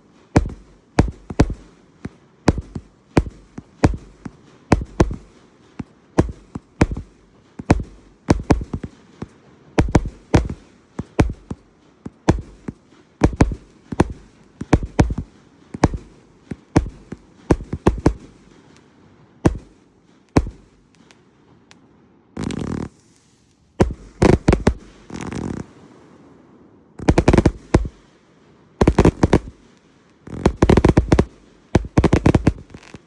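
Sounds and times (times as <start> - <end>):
firework bangs: 0.4 - 18.8, 19.5 - 21.1, 23.8 - 26.1, 27.0 - 28.2, 28.8 - 33.0.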